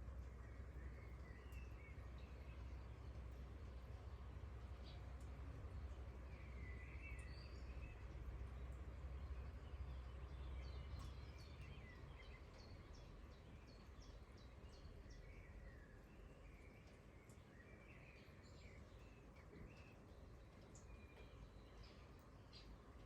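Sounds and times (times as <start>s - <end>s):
faint rain: 0.0s - 23.0s.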